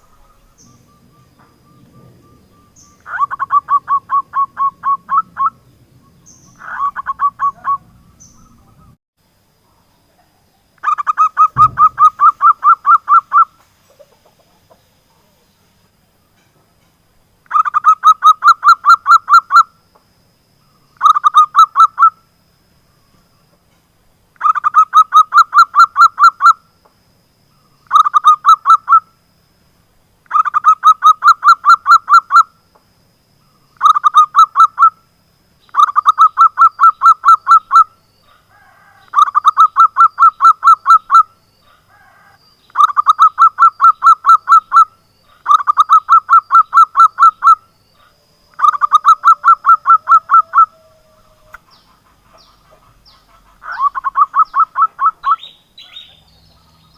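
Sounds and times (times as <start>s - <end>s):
dove calling staccato notes: 10.8s - 14.8s, 21.0s - 22.2s, 27.9s - 29.0s, 33.8s - 35.0s, 35.7s - 37.9s, 39.1s - 41.3s, 42.7s - 47.6s, 48.6s - 50.9s, 51.5s - 56.9s.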